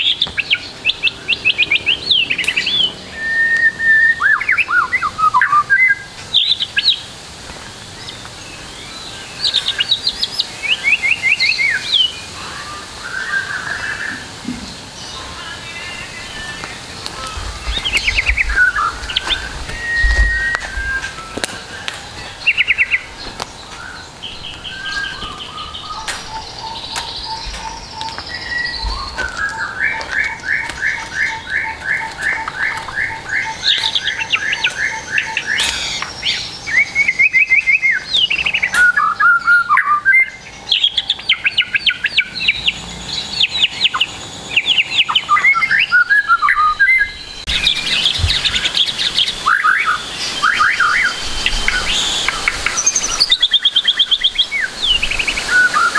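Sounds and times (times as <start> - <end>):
songbirds singing: 0.0 - 55.9
bird chips: 13.3 - 39.4, 42.2 - 55.9.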